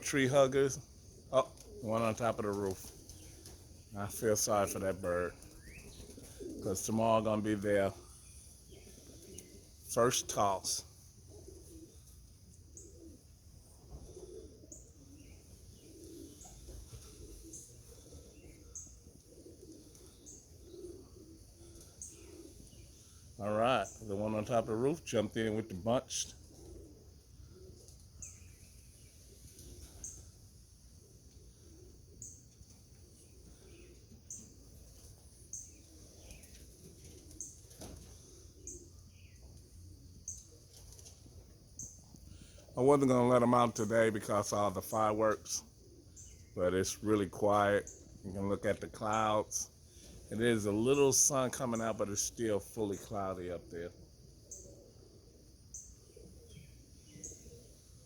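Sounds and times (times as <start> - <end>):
low steady background: 0.0 - 58.0
pigeons cooing: 0.0 - 58.0
falling bird chirps: 11.4 - 24.1.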